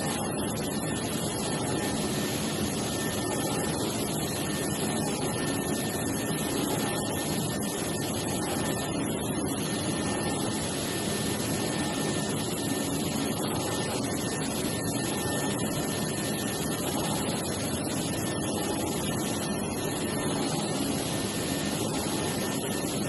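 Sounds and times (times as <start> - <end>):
faint high whine: 0.0 - 23.0.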